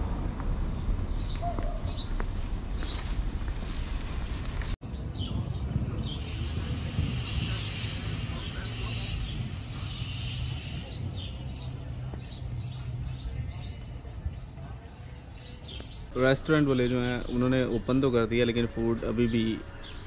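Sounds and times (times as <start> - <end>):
small birds chirping: 4.6 - 16.2.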